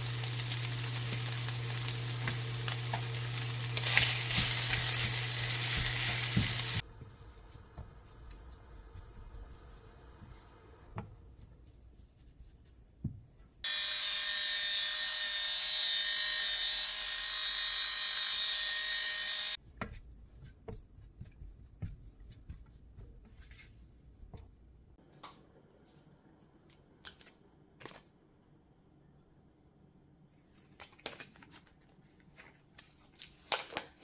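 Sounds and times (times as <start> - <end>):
small electric motor whirring: 13.6 - 19.6.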